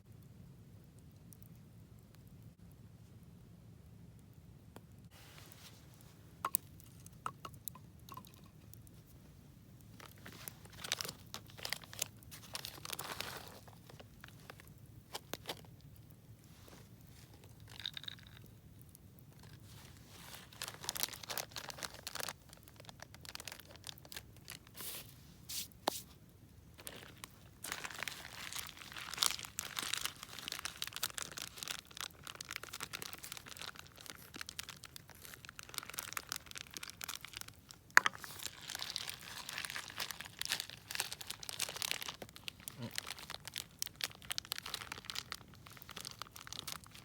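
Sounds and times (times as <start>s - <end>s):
campfire crackling and popping: 6.0s - 10.2s, 14.0s - 19.6s.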